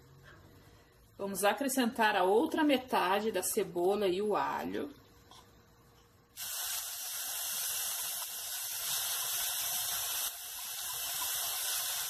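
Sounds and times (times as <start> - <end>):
onion sizzling in hot oil: 6.4 - 12.0.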